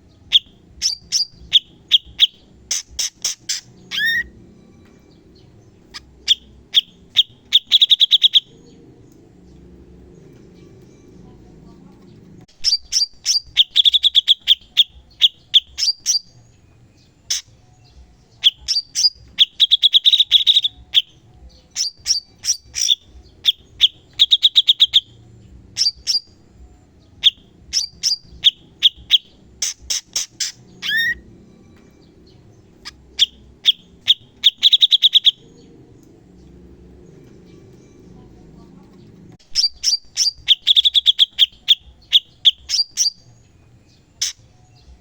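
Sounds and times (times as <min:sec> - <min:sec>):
songbird singing clicky notes: 0:00.3 - 0:26.4, 0:27.0 - 0:38.2, 0:38.8 - 0:45.0.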